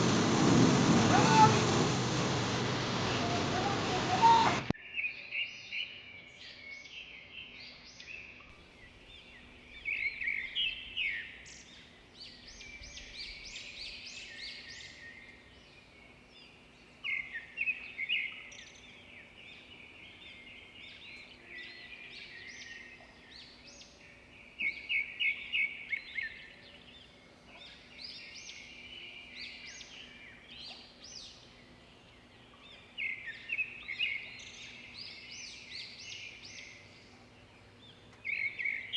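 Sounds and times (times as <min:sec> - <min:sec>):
wild birds chirping and singing: 0:00.0 - 0:38.9.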